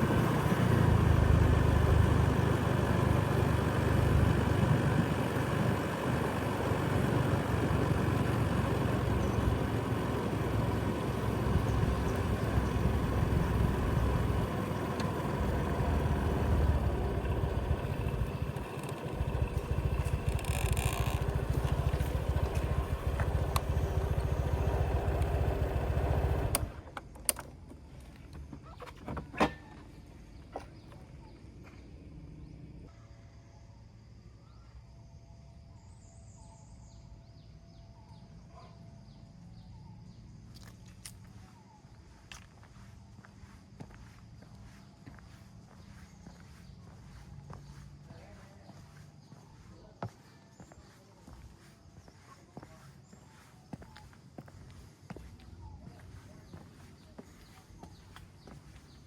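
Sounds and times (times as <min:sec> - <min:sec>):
vehicle engine running: 0:00.0 - 0:27.0, 0:39.1 - 0:59.0.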